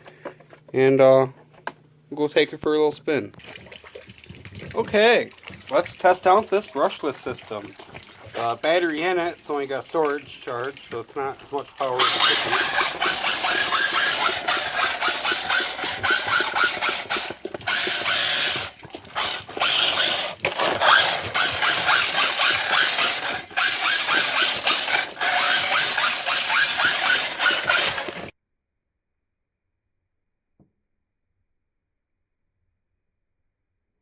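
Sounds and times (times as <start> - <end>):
toy car motor whirr and gear rattle: 4.7 - 28.4.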